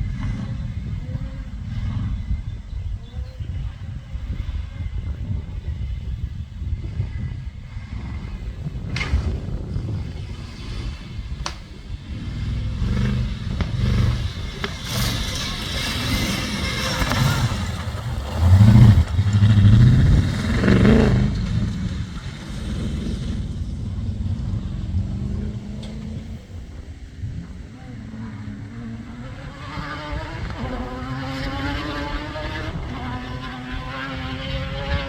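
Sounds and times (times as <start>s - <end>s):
engine revving: 0.0s - 35.0s
rattling and clatter: 10.3s - 26.3s.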